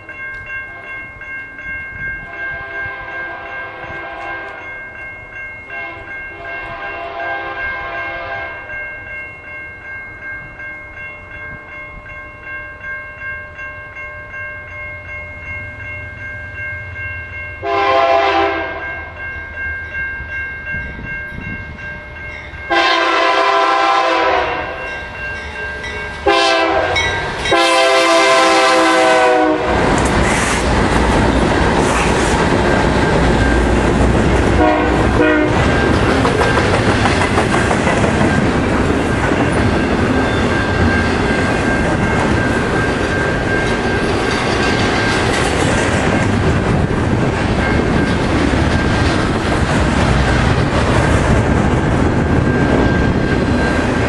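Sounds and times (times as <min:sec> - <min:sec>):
train rumble and clickety-clack: 0:00.0 - 0:14.4, 0:15.0 - 0:54.0
locomotive air horn blasts: 0:02.6 - 0:04.6, 0:05.8 - 0:08.6, 0:17.6 - 0:18.9, 0:22.7 - 0:24.8, 0:26.2 - 0:29.8, 0:34.6 - 0:35.7.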